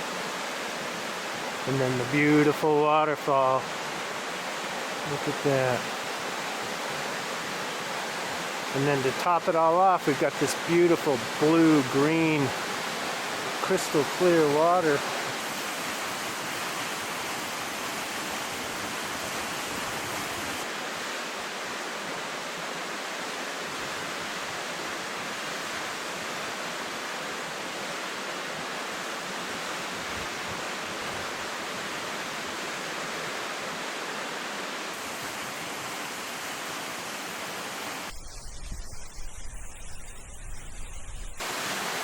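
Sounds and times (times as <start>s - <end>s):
waterfall rushing: 0.0s - 21.6s, 31.6s - 38.2s, 41.4s - 42.0s.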